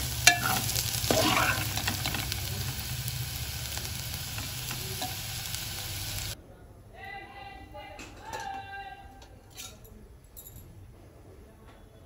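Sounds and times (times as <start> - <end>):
potatoes sizzling in oil: 0.0 - 6.4
metal spatula scraping pan: 0.2 - 2.2.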